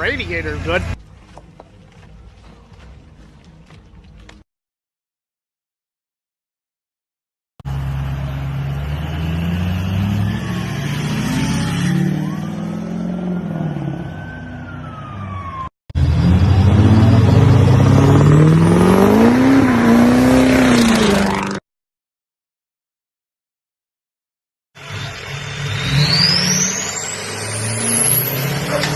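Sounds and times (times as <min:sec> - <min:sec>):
diesel truck engine revving: 0:07.7 - 0:14.1, 0:15.9 - 0:21.6, 0:24.8 - 0:28.9.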